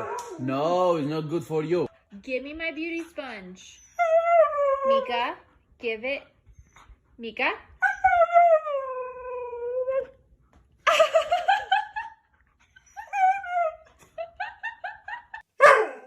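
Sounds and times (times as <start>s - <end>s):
dog howling: 0.0s - 0.5s
dog yipping: 15.6s - 16.0s.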